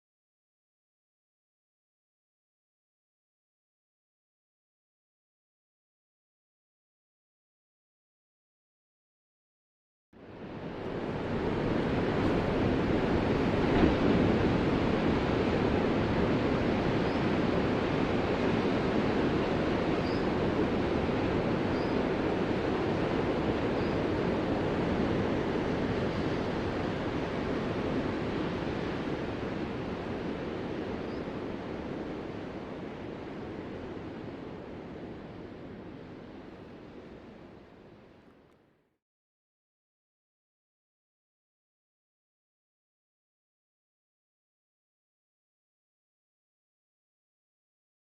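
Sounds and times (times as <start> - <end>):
ocean waves breaking: 10.4 - 37.4.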